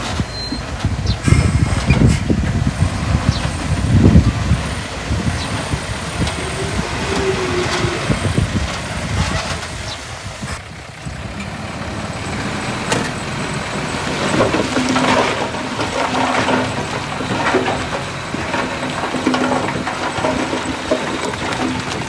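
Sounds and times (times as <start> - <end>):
knocks and rattles: 0.0 - 10.6
heavy diesel machinery running: 0.0 - 20.6.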